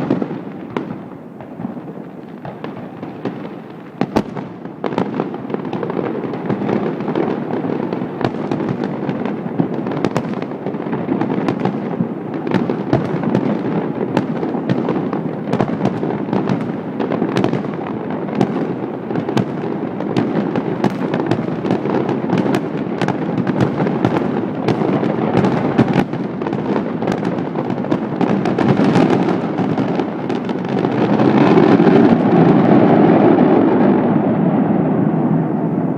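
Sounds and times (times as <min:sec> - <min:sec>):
fireworks bangs and crackling: 0:00.0 - 0:35.9.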